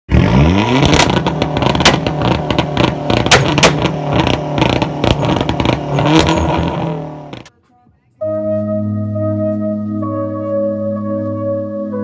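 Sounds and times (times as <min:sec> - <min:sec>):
car engine revving at limiter: 0:00.1 - 0:07.5
exhaust popping and banging: 0:00.2 - 0:07.5.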